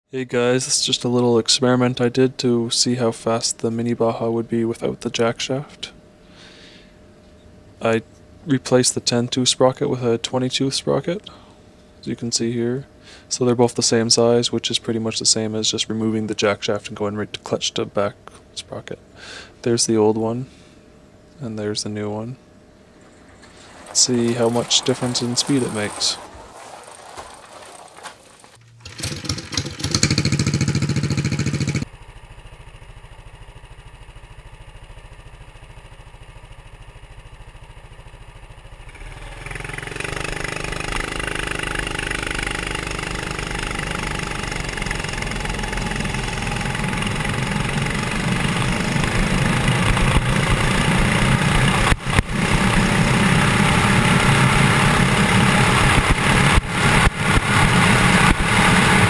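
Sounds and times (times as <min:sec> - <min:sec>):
mini bike engine running: 0:23.0 - 0:59.0.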